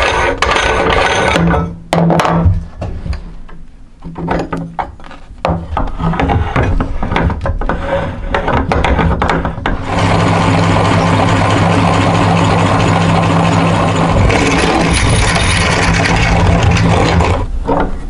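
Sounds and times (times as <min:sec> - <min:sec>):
meat grinder running: 0:09.8 - 0:17.4.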